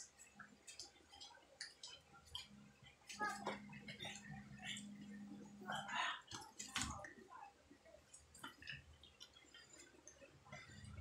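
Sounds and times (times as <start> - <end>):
mouth chewing sounds: 0.0 - 6.8, 8.0 - 11.0.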